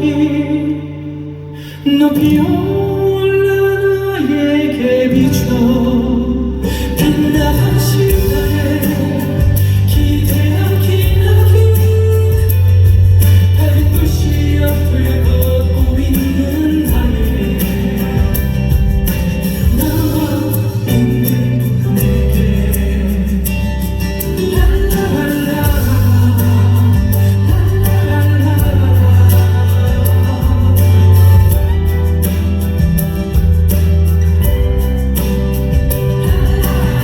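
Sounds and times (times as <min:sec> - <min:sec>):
band playing a pop ballad: 0:00.0 - 0:37.0
people singing: 0:04.8 - 0:31.8, 0:35.7 - 0:37.0.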